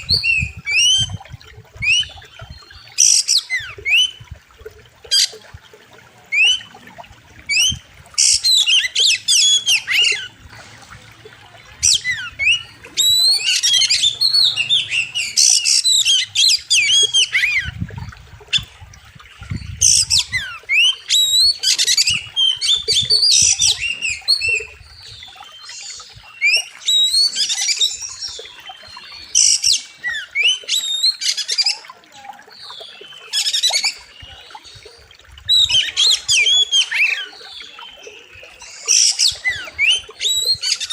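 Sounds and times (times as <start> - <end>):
bird singing varied song: 11.4 - 40.9.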